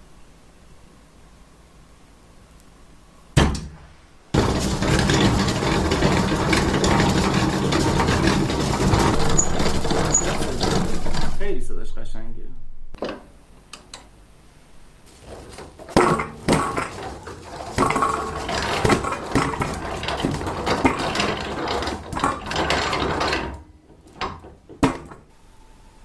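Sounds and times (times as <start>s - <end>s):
machine metallic clatter: 4.3s - 11.6s, 15.2s - 25.2s.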